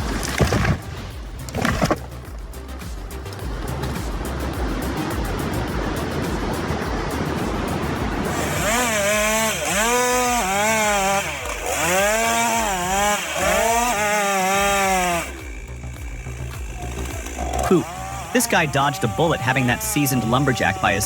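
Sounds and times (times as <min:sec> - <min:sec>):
chainsaw running: 0:08.0 - 0:21.0.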